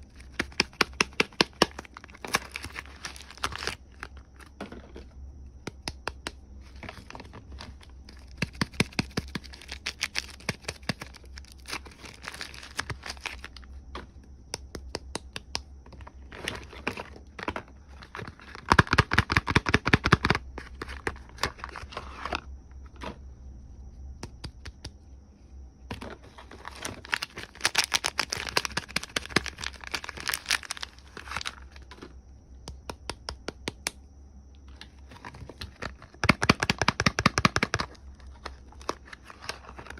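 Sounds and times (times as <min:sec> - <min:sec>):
packaging crinkling and tearing: 0:00.2 - 0:04.5, 0:06.8 - 0:13.7, 0:26.2 - 0:32.0, 0:35.1 - 0:39.9.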